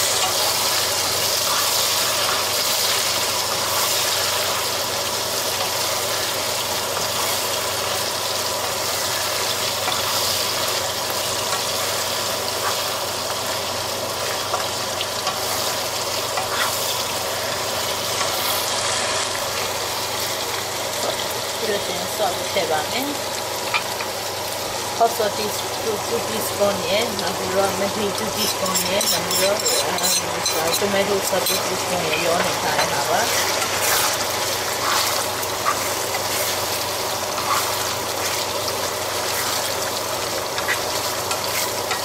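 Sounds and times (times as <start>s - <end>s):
food sizzling in a frying pan: 0.0s - 42.0s
spatula tapping and scraping pan: 28.4s - 33.1s.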